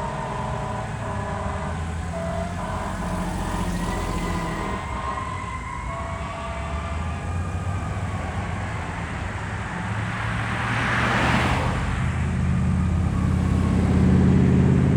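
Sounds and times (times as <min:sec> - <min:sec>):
heavy diesel engine pulling away: 0:00.0 - 0:09.1, 0:12.4 - 0:14.9.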